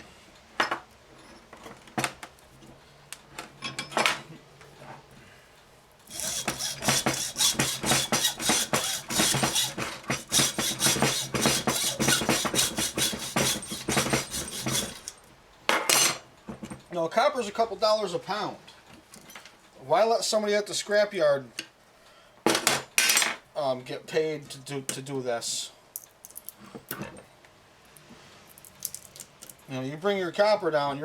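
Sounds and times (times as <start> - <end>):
hacksaw cutting copper: 6.1 - 15.2
metallic knocks and clanks: 6.1 - 16.8.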